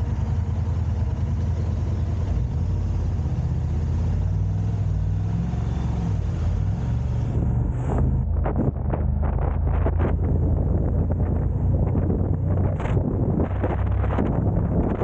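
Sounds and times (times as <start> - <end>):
car engine and road noise: 0.0 - 15.0
wind buffeting microphone: 6.2 - 15.0.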